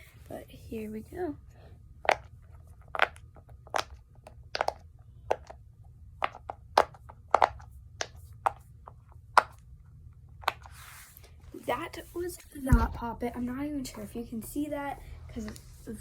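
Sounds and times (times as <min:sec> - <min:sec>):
pop-it toy bubbles popping: 0:03.0 - 0:05.6, 0:06.2 - 0:08.6.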